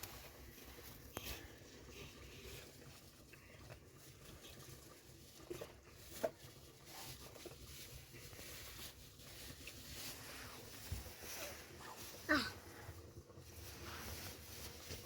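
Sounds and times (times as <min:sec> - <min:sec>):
faint background noise: 0:00.0 - 0:15.0.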